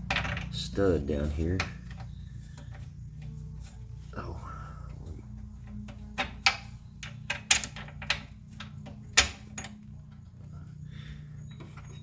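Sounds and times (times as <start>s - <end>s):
steel parts and tools clanking: 0.0s - 3.4s, 5.4s - 10.3s
steady low hum: 0.0s - 12.0s.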